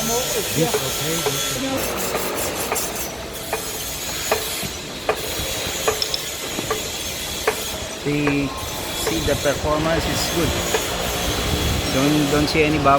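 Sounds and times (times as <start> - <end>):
welding arc hissing crackle: 0.0 - 12.6
welding arc sharp pops: 0.4 - 9.3, 10.7 - 11.0.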